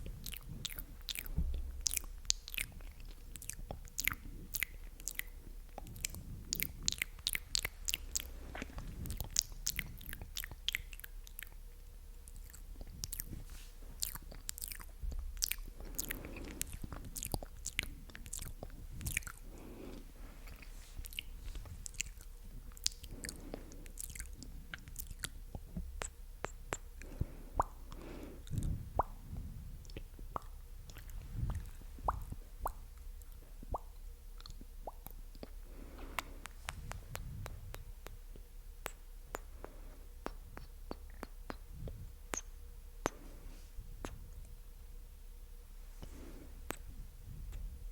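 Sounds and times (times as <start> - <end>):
wet mouth clicks and smacks: 0.1 - 11.6, 14.0 - 19.4, 20.4 - 29.2, 29.8 - 43.2, 44.0 - 44.6, 46.0 - 46.9.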